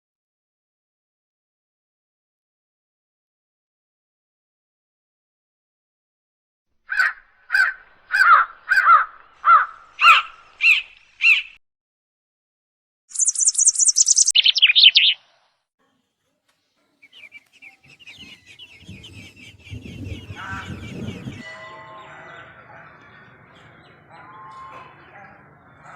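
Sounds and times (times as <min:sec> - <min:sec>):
crow cawing: 0:06.9 - 0:11.5
bird high fast trill: 0:06.9 - 0:11.6, 0:13.1 - 0:15.2
faint bird chattering: 0:06.9 - 0:11.6, 0:13.1 - 0:15.2, 0:16.9 - 0:21.4.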